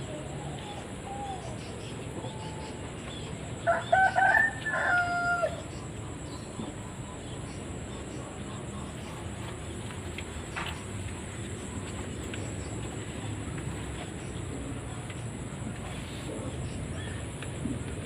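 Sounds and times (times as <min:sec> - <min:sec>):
rooster crowing: 0:03.6 - 0:05.7.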